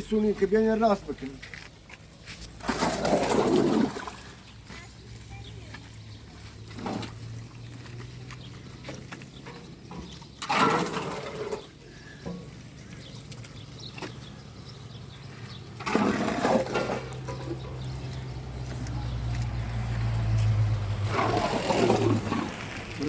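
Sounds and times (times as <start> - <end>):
water gushing: 2.6 - 4.4.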